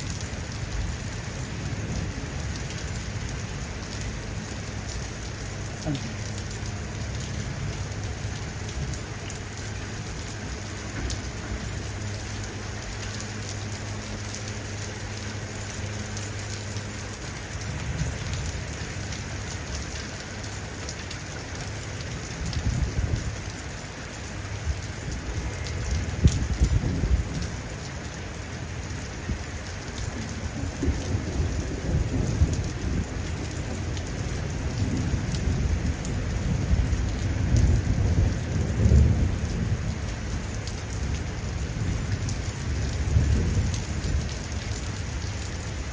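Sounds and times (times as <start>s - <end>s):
steady rain falling: 0.0s - 45.9s
low rumbles of thunder: 22.1s - 23.8s, 24.6s - 45.9s.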